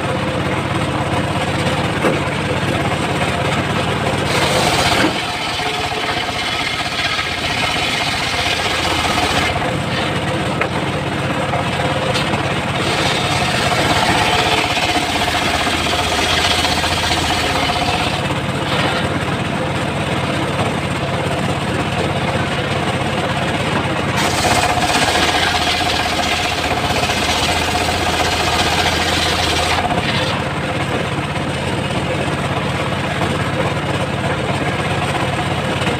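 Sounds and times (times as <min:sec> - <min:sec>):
sawmill engine running: 0:00.0 - 0:35.9
saw blade cutting log: 0:04.2 - 0:11.0, 0:11.8 - 0:19.3, 0:24.1 - 0:30.5.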